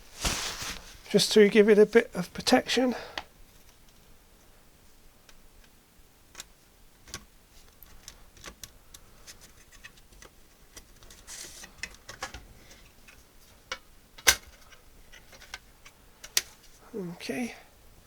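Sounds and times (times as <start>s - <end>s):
clicks of computer parts handled: 13.1s - 15.6s.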